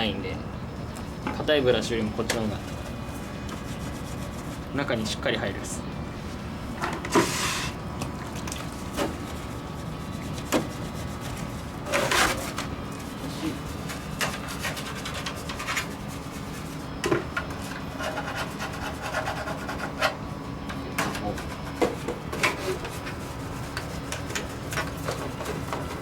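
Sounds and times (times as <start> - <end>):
brush scrubbing: 2.5 - 4.8, 8.4 - 20.2, 21.1 - 26.0.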